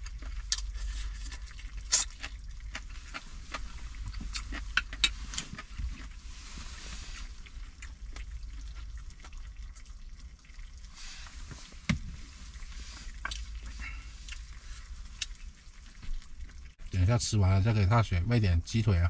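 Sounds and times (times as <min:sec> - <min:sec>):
person eating with mouth sounds: 0:00.0 - 0:06.5, 0:13.0 - 0:15.6.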